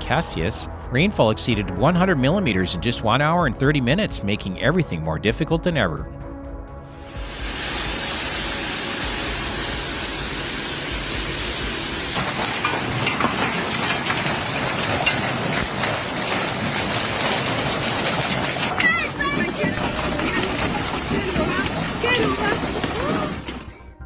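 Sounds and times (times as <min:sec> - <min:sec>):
heavy rain hiss: 0:07.0 - 0:19.2
raindrops ticking on surfaces: 0:07.1 - 0:23.7.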